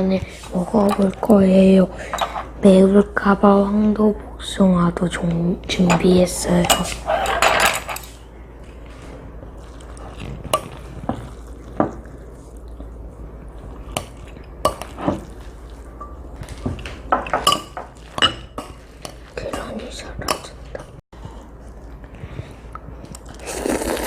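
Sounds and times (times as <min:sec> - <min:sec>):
utensils clinking against bowl: 0:00.7 - 0:01.2, 0:02.0 - 0:02.5, 0:05.7 - 0:08.2, 0:16.0 - 0:21.0.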